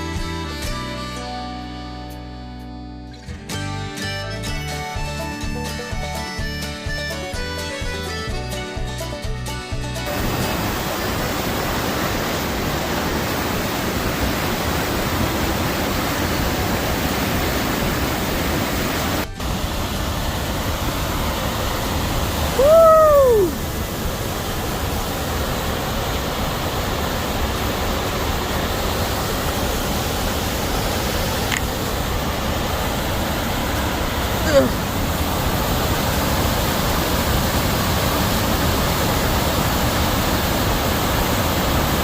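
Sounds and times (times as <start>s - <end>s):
waterfall rushing: 10.0s - 42.0s.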